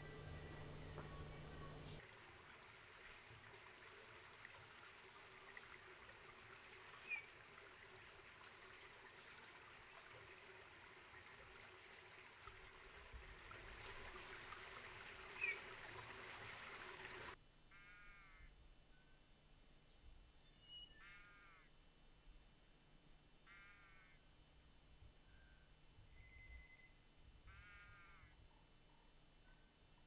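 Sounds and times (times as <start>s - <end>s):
faint high-pitched calls: 17.7s - 19.2s, 20.8s - 21.8s, 23.4s - 24.3s, 25.3s - 29.8s.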